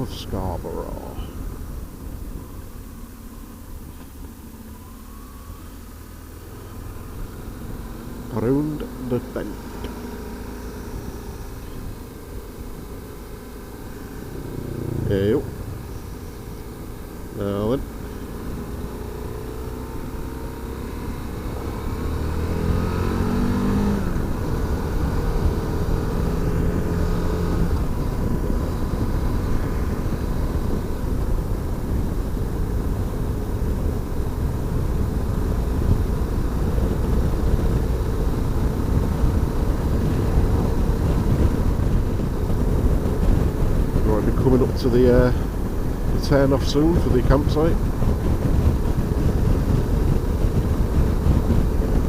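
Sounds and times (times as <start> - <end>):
motorcycle engine: 0.7 - 52.0
wind rush: 13.9 - 20.1, 20.9 - 52.0.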